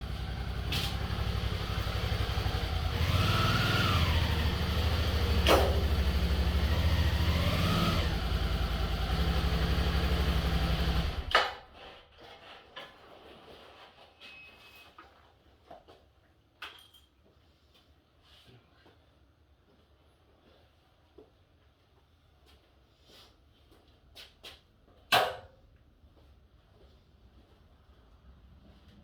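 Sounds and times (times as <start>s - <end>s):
motorcycle engine revving: 0.0s - 11.3s
engine shutoff knock: 4.1s - 7.7s.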